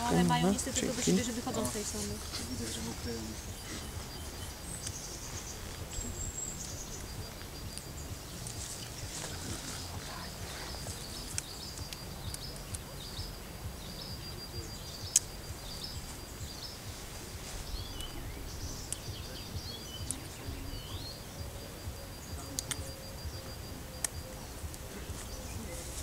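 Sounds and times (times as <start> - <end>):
birds chirping: 0.0 - 26.0
low outdoor rumble: 0.0 - 26.0
thin steady high tone: 0.0 - 26.0
sharp click: 22.4 - 23.0.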